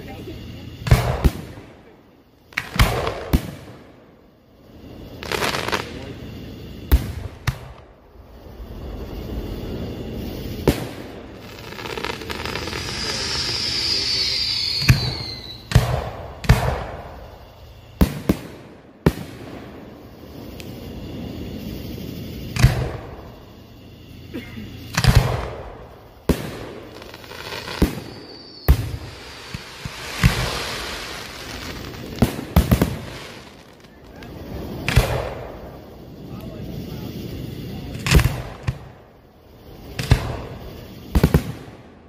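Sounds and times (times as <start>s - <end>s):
firework hiss and falling whistle: 2.4s - 42.0s
firework shells bursting: 9.7s - 23.5s, 24.8s - 37.1s.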